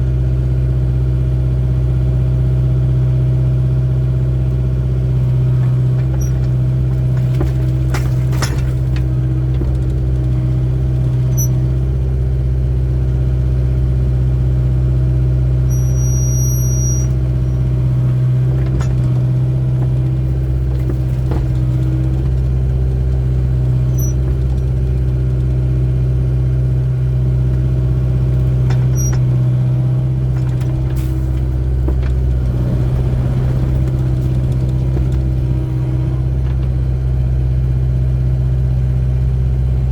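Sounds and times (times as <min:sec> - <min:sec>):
excavator diesel engine running: 0:00.0 - 0:39.9
short high squeaks: 0:06.0 - 0:09.0, 0:11.0 - 0:11.8, 0:15.7 - 0:22.4, 0:23.7 - 0:24.8, 0:28.5 - 0:29.6.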